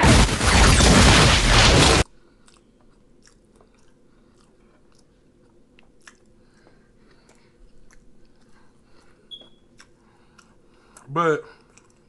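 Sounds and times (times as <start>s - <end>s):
faint chewing: 2.2s - 12.0s
mouth clicks and smacks: 2.4s - 12.0s.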